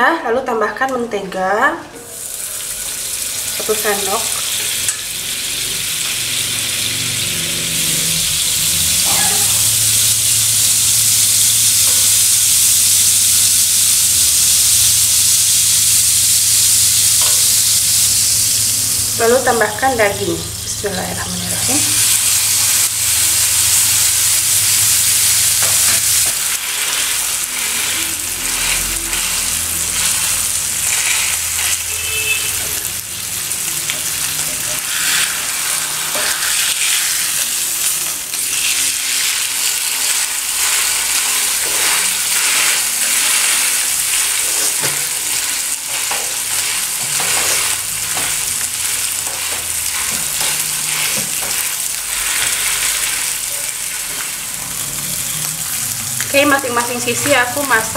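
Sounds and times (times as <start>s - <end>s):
meat sizzling in butter: 2.1s - 57.9s.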